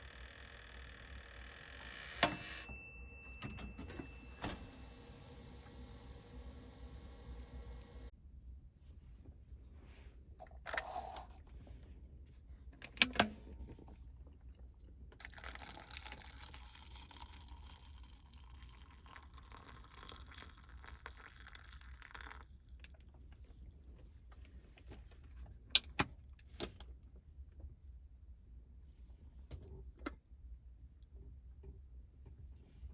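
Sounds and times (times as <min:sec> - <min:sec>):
steady hiss: 0:04.2 - 0:08.1.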